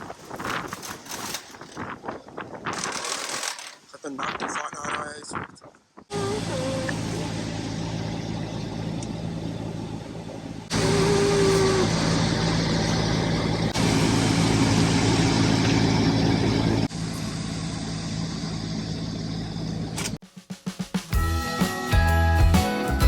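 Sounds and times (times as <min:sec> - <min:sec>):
engine humming: 0:06.1 - 0:20.2.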